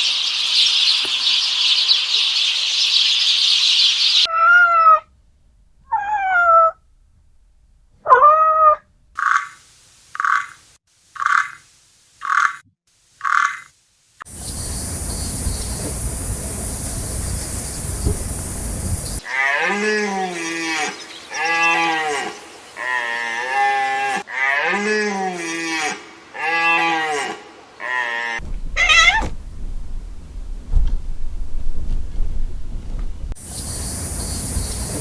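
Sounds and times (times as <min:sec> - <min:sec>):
steady high hiss: 0:09.2 - 0:19.2, 0:28.4 - 0:35.0
low rumbling noise: 0:14.4 - 0:19.2, 0:28.4 - 0:35.0
animal calling: 0:28.4 - 0:30.3.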